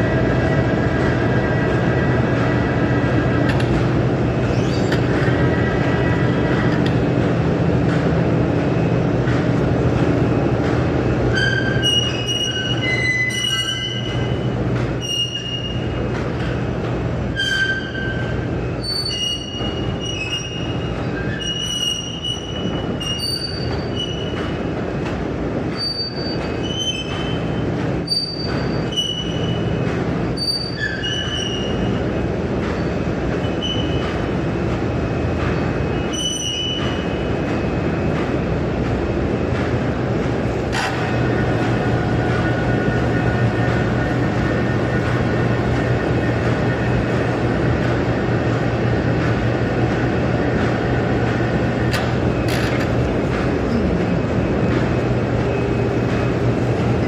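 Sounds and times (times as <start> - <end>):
train rumbling: 0.0 - 57.0
train wheels squealing: 4.4 - 6.3, 11.3 - 16.0, 17.3 - 24.6, 25.7 - 32.0, 32.8 - 34.2, 35.9 - 37.3.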